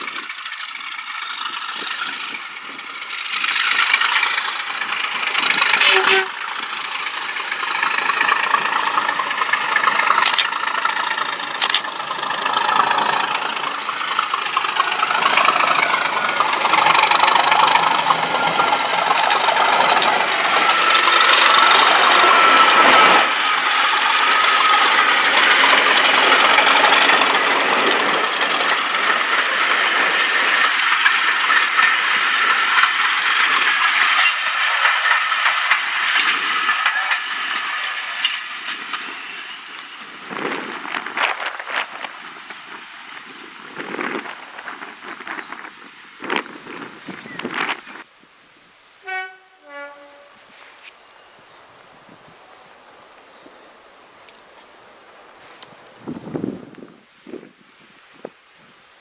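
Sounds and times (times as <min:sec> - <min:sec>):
diesel locomotive engine running: 0:00.0 - 0:48.1, 0:49.0 - 0:56.9
sharp clicks: 0:07.2 - 0:12.0, 0:14.8 - 0:23.3, 0:23.9 - 0:28.6.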